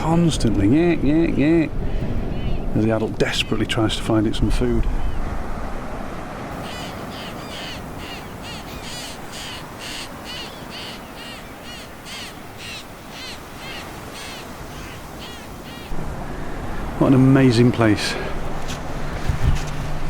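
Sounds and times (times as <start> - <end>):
young bird begging calls: 6.6 - 16.0.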